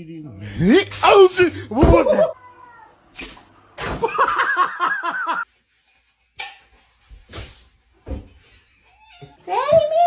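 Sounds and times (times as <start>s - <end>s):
person laughing: 4.0s - 5.4s.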